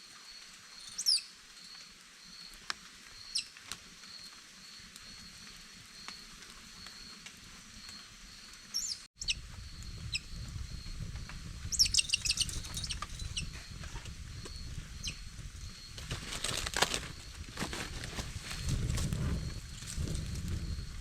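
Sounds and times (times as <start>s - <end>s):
high bird chirps: 0.8s - 1.3s, 8.8s - 10.4s, 11.7s - 13.5s
rustling crackles: 15.8s - 21.0s.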